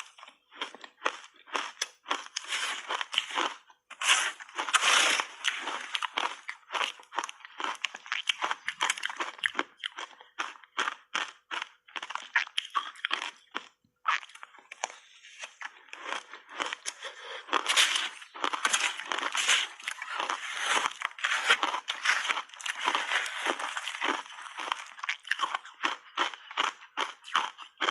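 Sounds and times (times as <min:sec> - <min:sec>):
ice crunched between teeth: 0:00.0 - 0:27.9.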